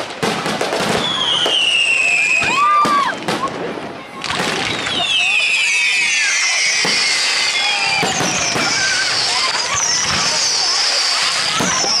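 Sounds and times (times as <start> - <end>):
fireworks bangs and crackling: 0.0 - 12.0
falling whistle: 1.0 - 3.0, 4.7 - 12.0.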